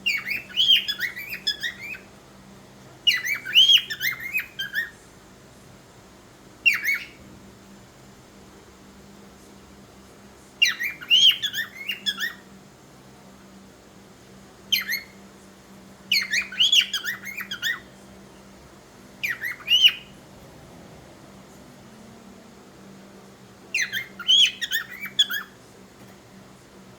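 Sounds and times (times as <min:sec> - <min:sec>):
cockatiel chirping and squawking: 0:00.1 - 0:02.1, 0:03.1 - 0:04.9, 0:06.7 - 0:07.2, 0:10.6 - 0:12.4, 0:14.7 - 0:15.2, 0:16.1 - 0:17.8, 0:19.2 - 0:20.1, 0:23.7 - 0:25.6.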